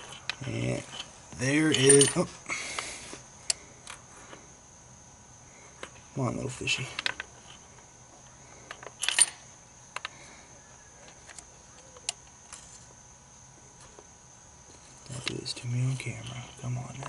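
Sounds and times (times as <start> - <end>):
metal tool clinking on spark plug: 1.6 - 2.2.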